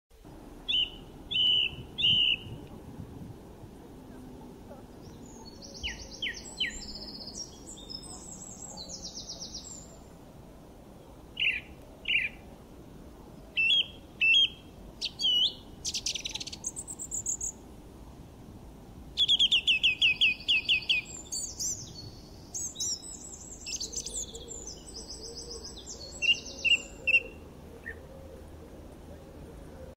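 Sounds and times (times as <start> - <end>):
faint outdoor background hum: 0.2 - 30.0
songbirds chirping and singing: 0.7 - 2.6, 4.7 - 10.1, 13.6 - 17.5, 19.2 - 29.8.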